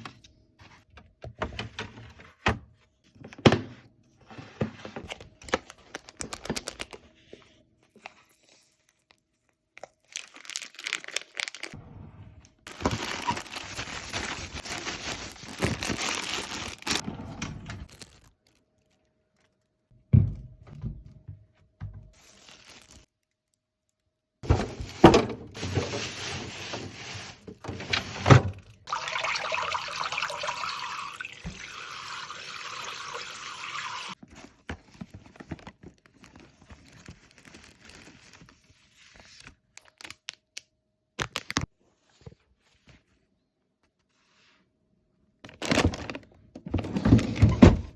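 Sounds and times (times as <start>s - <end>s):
plastic bags rustling: 9.8s - 11.8s, 12.6s - 17.0s, 17.8s - 19.7s, 22.1s - 23.2s, 24.4s - 28.6s, 34.3s - 38.6s
items knocking when set down: 24.4s - 28.6s.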